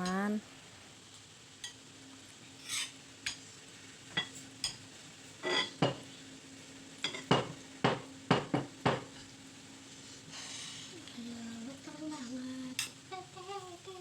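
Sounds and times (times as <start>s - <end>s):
faint steady hum: 0.0s - 14.0s
cutlery clinking on plates: 2.6s - 3.4s, 4.1s - 4.8s, 5.4s - 6.0s, 7.0s - 9.2s.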